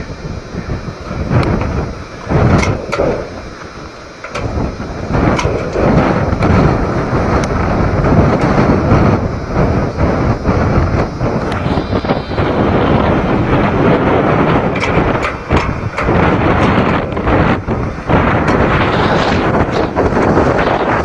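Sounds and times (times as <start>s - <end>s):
wind buffeting microphone: 0.0s - 21.0s
car hood knocking and rattling: 14.6s - 18.7s.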